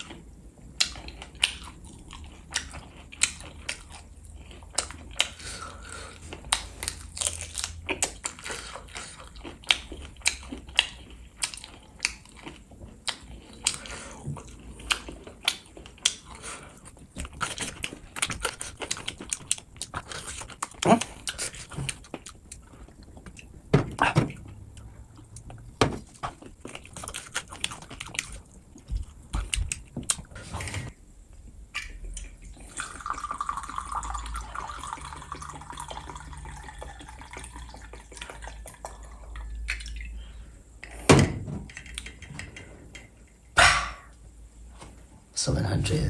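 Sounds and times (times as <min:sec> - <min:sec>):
liquid pouring into glass: 0:32.7 - 0:39.5
sharp knock: 0:43.6 - 0:44.1.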